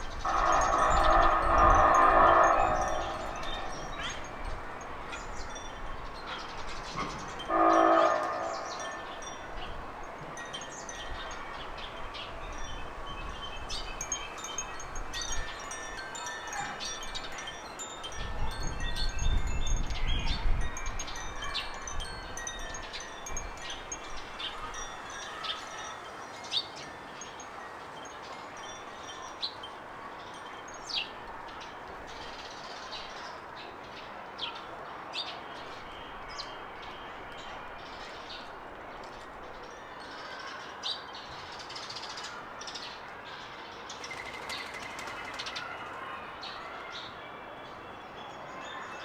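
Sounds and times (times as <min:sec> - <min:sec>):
birds chirping: 0:00.0 - 0:27.4
loud horn-like tone: 0:07.5 - 0:08.8.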